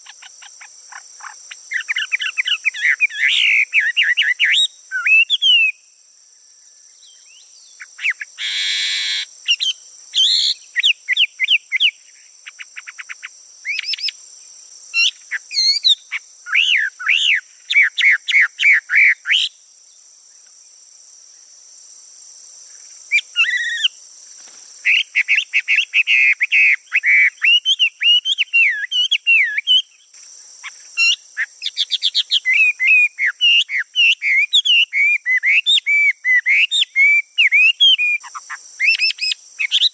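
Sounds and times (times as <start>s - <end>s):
high insect drone: 0.0s - 39.9s
songbird singing whistles and trills: 1.7s - 5.9s, 7.0s - 14.2s, 15.0s - 19.6s, 23.1s - 24.0s, 24.9s - 30.1s, 31.0s - 39.9s.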